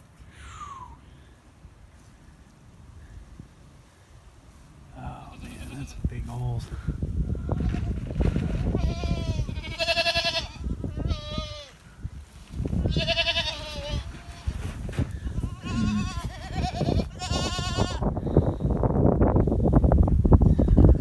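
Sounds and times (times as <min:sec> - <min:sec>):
goats bleating: 0:08.7 - 0:11.8, 0:12.9 - 0:14.6, 0:15.2 - 0:18.0.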